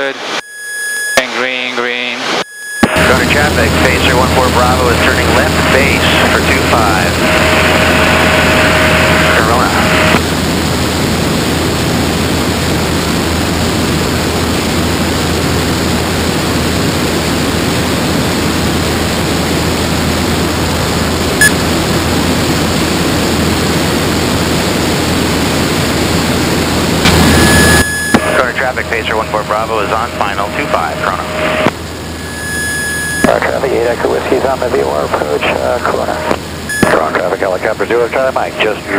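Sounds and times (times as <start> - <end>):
radio tone: 0.0 - 10.3, 26.9 - 38.9
aircraft engine drone: 0.0 - 38.9
radio click: 2.8 - 3.3, 28.1 - 28.5, 36.2 - 37.3.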